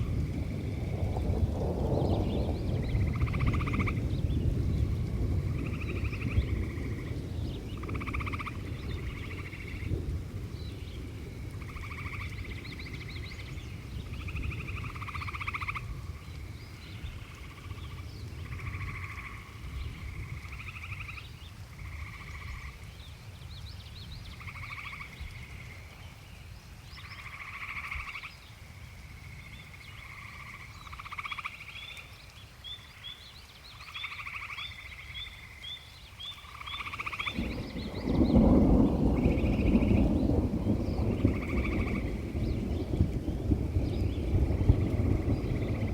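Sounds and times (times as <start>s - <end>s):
distant thunder rumble: 0.0s - 22.8s, 36.5s - 45.9s
frogs calling in pulsed trills: 2.8s - 4.1s, 4.8s - 9.9s, 11.2s - 22.9s, 24.3s - 26.1s, 26.9s - 43.4s.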